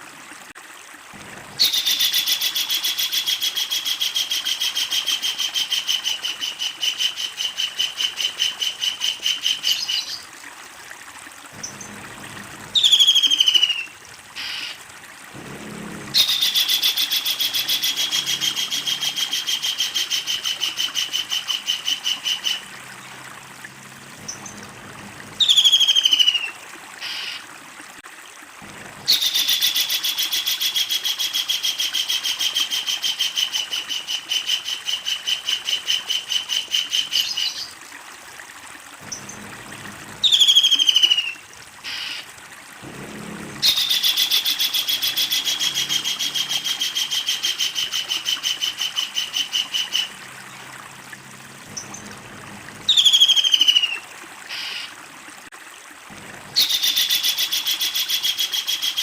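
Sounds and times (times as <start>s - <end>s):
kingfisher rattling calls: 16.1s - 23.1s, 43.6s - 50.6s.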